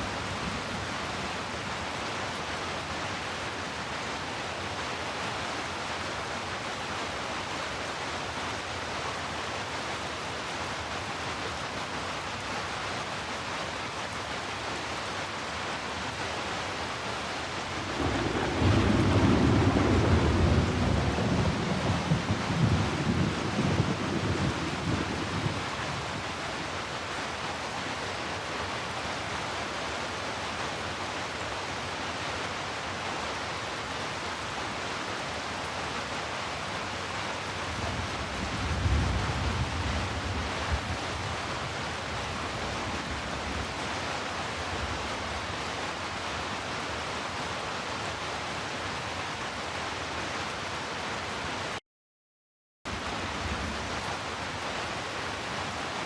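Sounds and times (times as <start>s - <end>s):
heavy rain: 0.0s - 51.8s, 52.9s - 56.0s.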